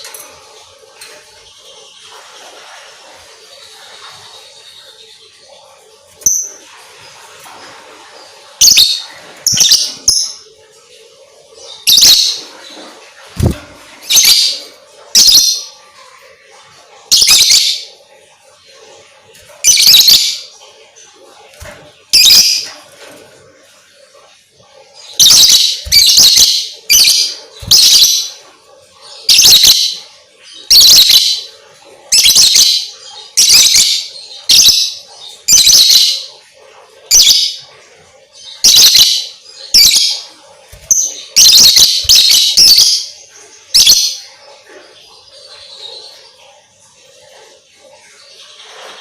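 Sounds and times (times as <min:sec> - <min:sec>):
lovebird chirping: 0:08.6 - 0:10.5, 0:11.7 - 0:12.4, 0:15.2 - 0:15.7, 0:17.1 - 0:17.9, 0:19.6 - 0:20.5, 0:22.1 - 0:22.7, 0:25.0 - 0:28.4, 0:29.1 - 0:30.0, 0:30.6 - 0:31.5, 0:32.1 - 0:36.3, 0:38.6 - 0:44.4.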